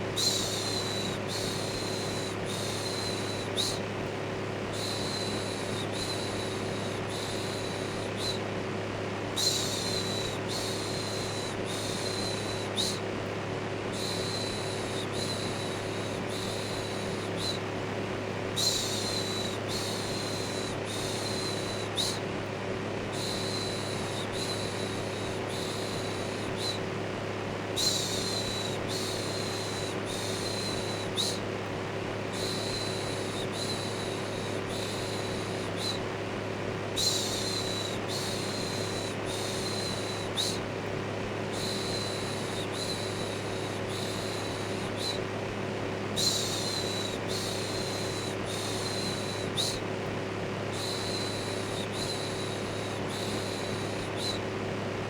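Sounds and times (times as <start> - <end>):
electric fan humming: 0.0 - 55.0.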